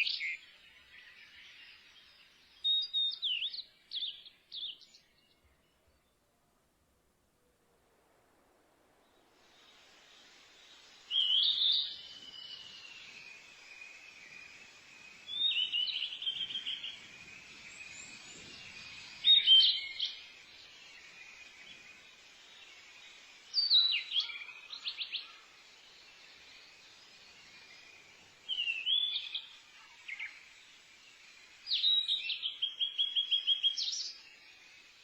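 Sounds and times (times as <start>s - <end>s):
songbird chirping: 0.0s - 7.7s, 8.4s - 35.0s
faint outdoor hiss: 0.0s - 35.0s.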